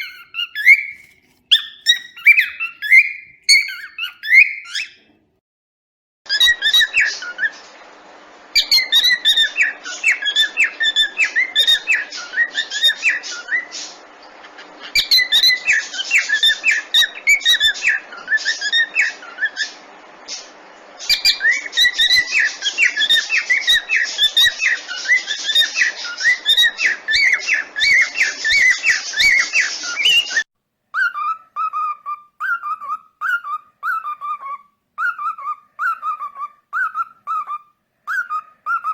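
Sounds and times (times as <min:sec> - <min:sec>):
cockatiels chirping: 0:00.0 - 0:05.1, 0:06.3 - 0:07.7, 0:08.5 - 0:38.9.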